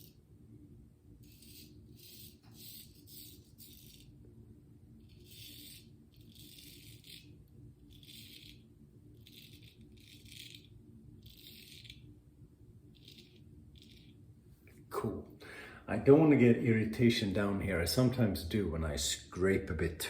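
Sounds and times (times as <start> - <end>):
razor scraping stubble: 5.0 - 12.1.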